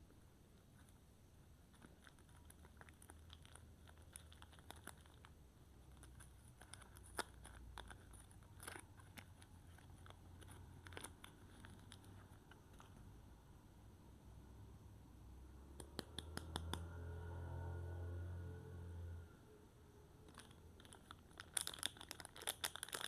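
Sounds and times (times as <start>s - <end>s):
faint low hum: 0.0s - 23.0s
soap packaging crinkling: 1.8s - 13.0s, 20.3s - 23.0s.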